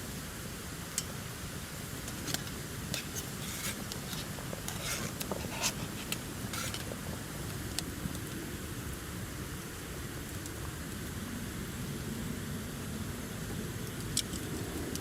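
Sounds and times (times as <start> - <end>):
campfire crackling and popping: 0.5 - 8.4.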